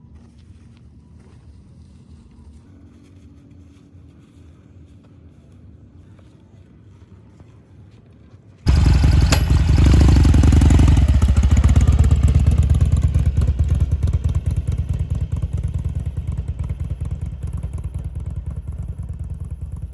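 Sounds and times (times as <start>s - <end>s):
motorcycle engine starting and running: 8.6s - 19.9s.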